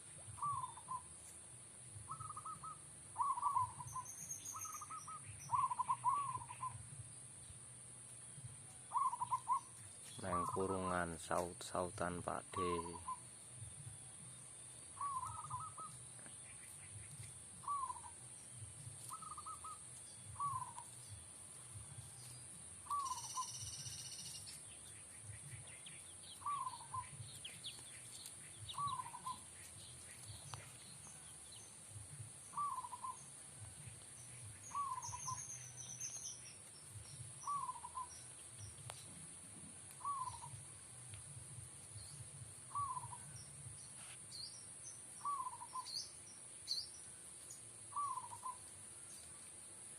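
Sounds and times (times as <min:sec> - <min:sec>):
doves cooing: 0:00.0 - 0:01.2, 0:02.0 - 0:07.0, 0:08.8 - 0:13.3, 0:14.8 - 0:22.2, 0:22.8 - 0:24.5, 0:25.1 - 0:31.4, 0:32.0 - 0:36.2, 0:37.0 - 0:38.4, 0:39.6 - 0:40.8, 0:42.0 - 0:43.4, 0:45.2 - 0:45.9, 0:47.9 - 0:48.6
high thin chirps: 0:22.2 - 0:24.8.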